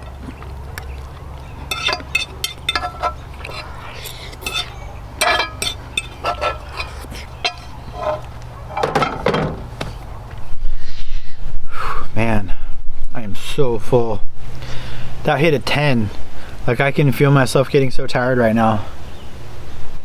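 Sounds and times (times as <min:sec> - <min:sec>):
utensils and dishes clinking: 0:00.0 - 0:09.6
steady low hum: 0:00.0 - 0:10.6.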